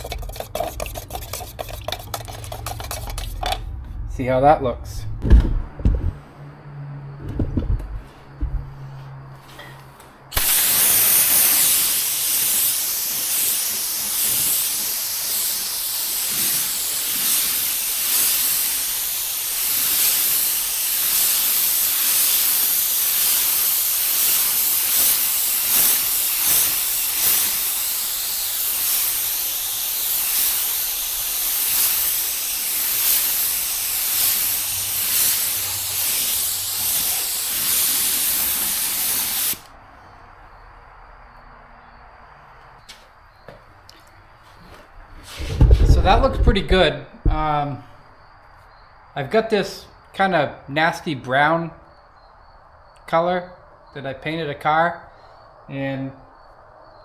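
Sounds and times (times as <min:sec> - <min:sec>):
paint spray gun hissing: 0:00.0 - 0:03.6, 0:10.3 - 0:39.7.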